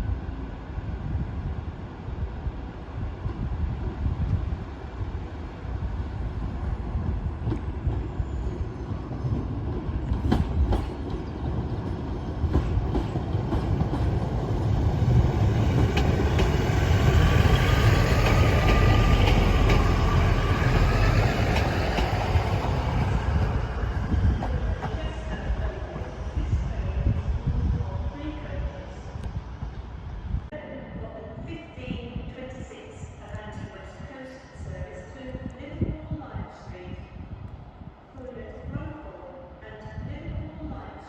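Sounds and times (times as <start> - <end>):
train rumbling: 0.0 - 30.5.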